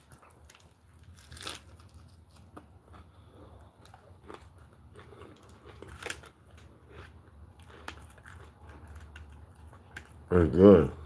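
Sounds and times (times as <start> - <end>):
light food crunches: 0.0 - 10.3
wet chewing mouth sounds: 2.4 - 10.2.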